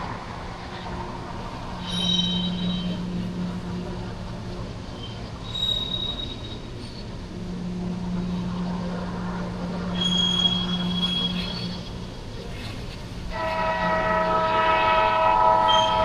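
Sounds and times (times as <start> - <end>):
freight train rolling by: 0.0 - 16.0
wheel squeal: 1.8 - 3.1, 5.0 - 7.1, 9.9 - 12.0, 13.4 - 16.0.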